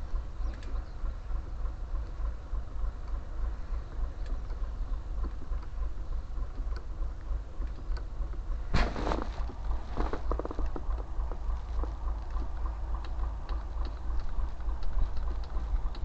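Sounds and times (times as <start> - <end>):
faint clicks: 0.4 - 1.2, 9.4 - 16.0.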